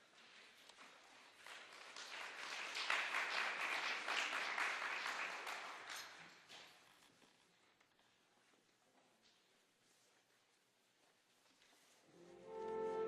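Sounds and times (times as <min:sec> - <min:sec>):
audience applauding: 0:00.7 - 0:06.3.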